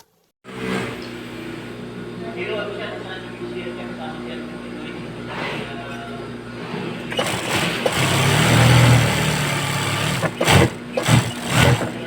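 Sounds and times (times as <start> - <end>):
sewing machine stitching: 7.1 - 12.0.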